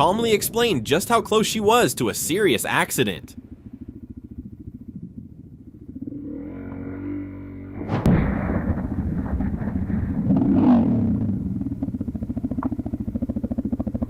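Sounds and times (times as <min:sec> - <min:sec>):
motorcycle engine running: 0:00.0 - 0:08.0, 0:09.1 - 0:14.0
steady pitched tone: 0:00.0 - 0:14.0
loud rough noise: 0:05.8 - 0:14.0
sharp loud bang: 0:07.8 - 0:11.2.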